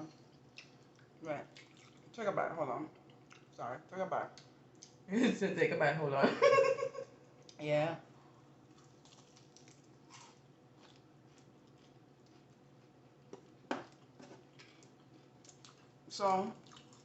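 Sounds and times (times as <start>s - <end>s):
quiet chewing: 0.0s - 2.2s, 2.9s - 3.6s, 4.3s - 5.0s, 8.3s - 16.0s, 16.6s - 17.0s.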